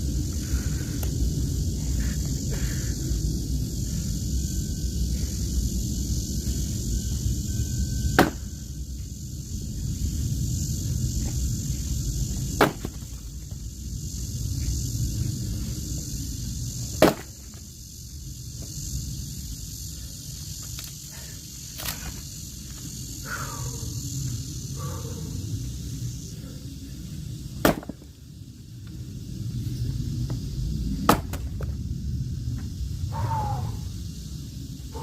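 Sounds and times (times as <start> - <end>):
axe strikes splitting logs: 8.1 - 8.4, 12.6 - 13.0, 17.0 - 17.3, 27.6 - 28.0, 31.1 - 31.5.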